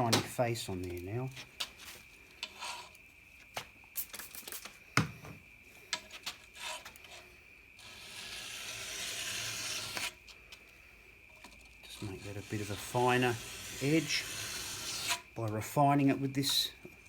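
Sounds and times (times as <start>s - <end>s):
file scraping steel blade: 2.4s - 3.0s, 6.5s - 7.2s, 7.8s - 10.2s, 11.9s - 15.3s.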